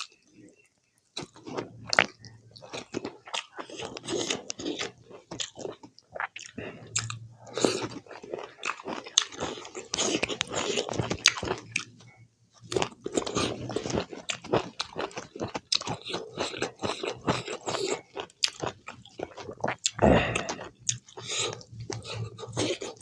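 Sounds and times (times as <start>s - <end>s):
person chewing and biting food: 12.7s - 23.0s.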